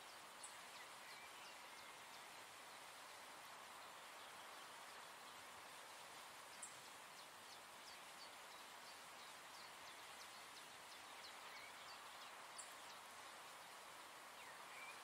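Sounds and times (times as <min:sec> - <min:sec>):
steady soft hiss: 0:00.0 - 0:15.0
faint bird chirps: 0:06.5 - 0:15.0.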